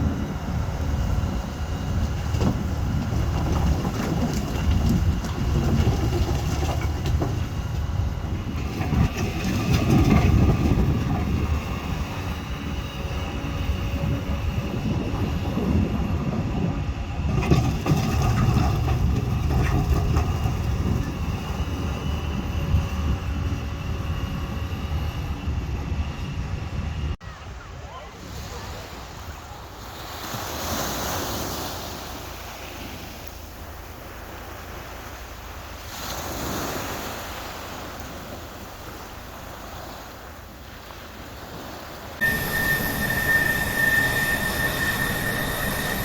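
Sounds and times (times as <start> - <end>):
diesel engine rumbling: 0.0 - 27.2, 42.0 - 46.0.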